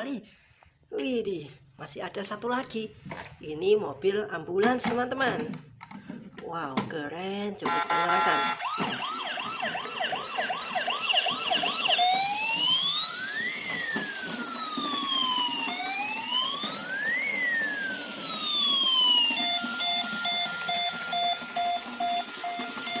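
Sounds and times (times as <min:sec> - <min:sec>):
toy ambulance electronic siren: 0:07.6 - 0:23.0.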